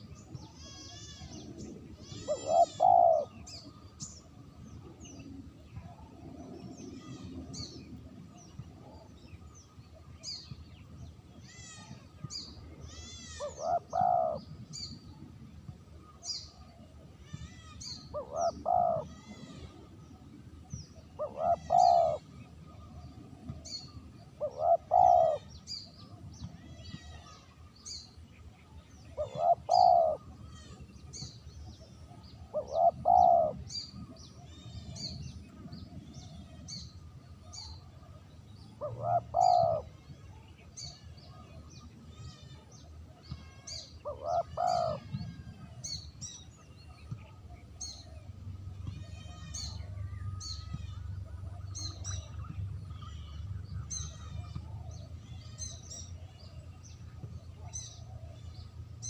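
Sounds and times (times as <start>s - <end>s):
small birds chirping: 0.0s - 59.0s
dove cooing: 0.6s - 3.5s, 13.0s - 14.5s, 18.1s - 19.8s, 21.2s - 22.3s, 24.4s - 25.5s, 29.2s - 30.3s, 32.5s - 33.7s, 38.8s - 40.0s, 44.0s - 45.8s.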